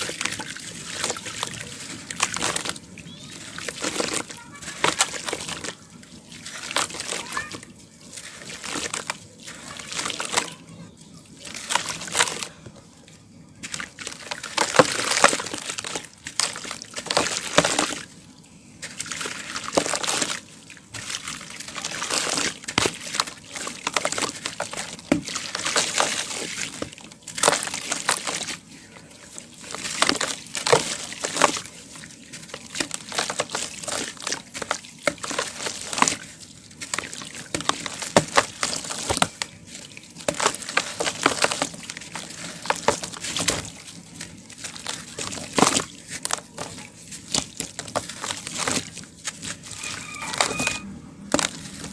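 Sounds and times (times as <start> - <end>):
water sloshing: 0.0 - 51.9
gritty crunching and crackling: 29.6 - 51.9.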